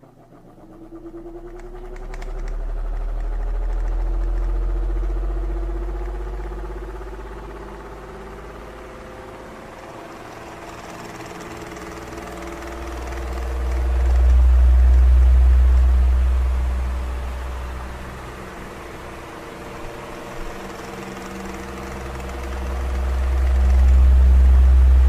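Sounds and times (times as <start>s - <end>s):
electric fan humming: 0.0s - 25.0s.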